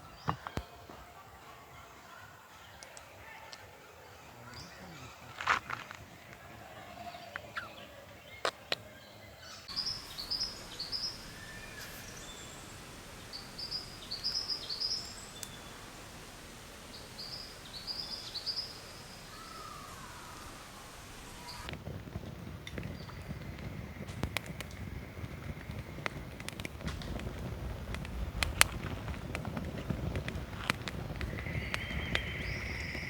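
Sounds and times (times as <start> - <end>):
bird chirping high falling calls: 7.5 - 21.7, 31.2 - 33.0.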